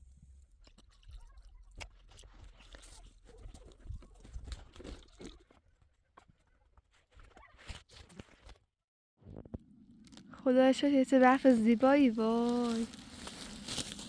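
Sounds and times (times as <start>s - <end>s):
footsteps crunching in snow: 11.4s - 14.0s.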